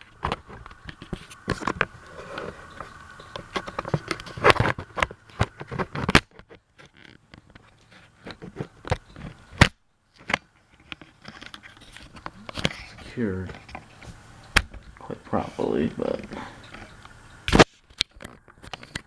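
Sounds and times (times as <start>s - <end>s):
object handling clicks and knocks: 0.0s - 15.1s
faint steady hum: 0.0s - 19.0s.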